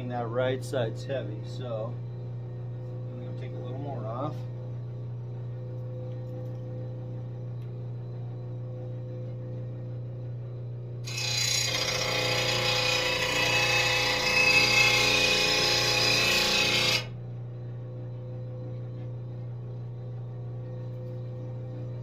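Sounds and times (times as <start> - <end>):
steady low hum: 0.0 - 22.0
blade grinding on grinding wheel: 11.1 - 17.2.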